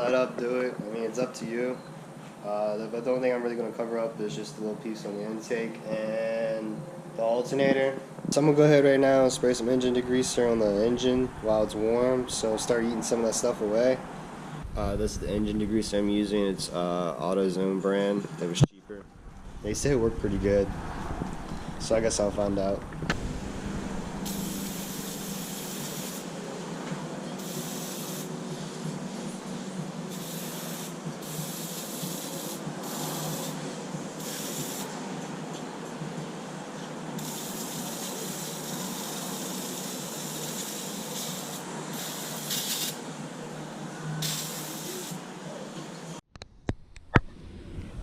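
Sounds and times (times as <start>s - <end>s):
spray can spraying: 24.3s - 26.3s, 27.4s - 28.3s, 30.1s - 33.6s, 34.2s - 34.9s, 37.2s - 43.0s, 44.2s - 45.2s.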